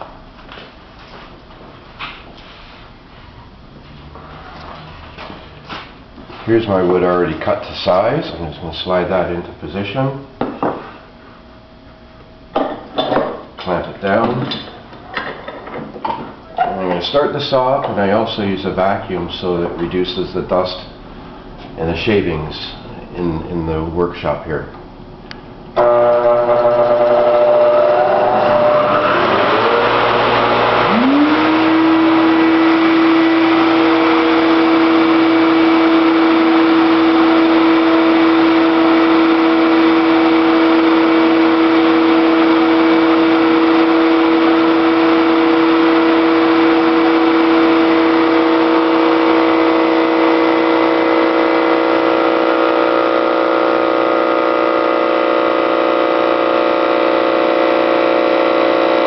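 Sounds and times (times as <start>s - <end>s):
saw and vacuum motors whining: 25.8s - 59.0s.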